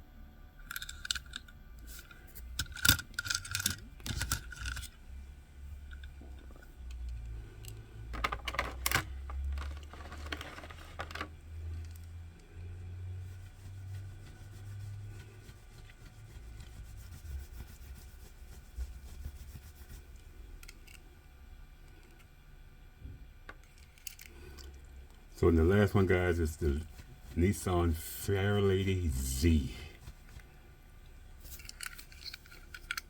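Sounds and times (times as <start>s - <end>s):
toy cars clicking and rattling: 0.6s - 5.0s, 23.6s - 24.7s, 31.4s - 33.0s.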